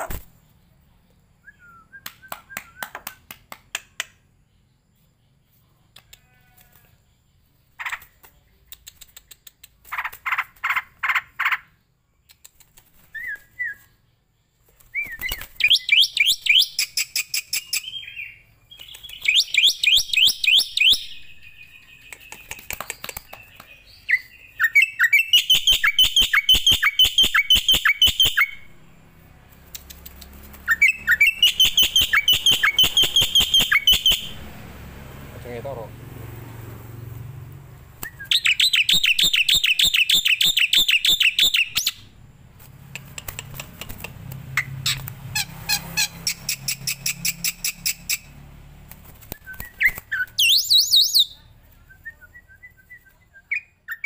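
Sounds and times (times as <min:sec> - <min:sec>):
rapid chirps with sharp clicks: 0:07.8 - 0:10.5, 0:12.2 - 0:13.1, 0:22.0 - 0:23.7, 0:29.6 - 0:34.5, 0:42.7 - 0:45.2
starling calling: 0:29.9 - 0:34.7, 0:38.0 - 0:42.2.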